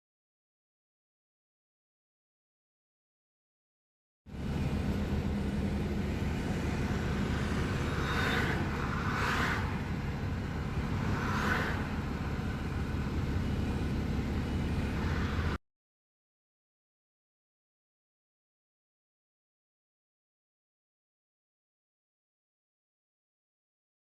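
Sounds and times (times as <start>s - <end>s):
vehicle engine rumbling: 4.3s - 15.6s.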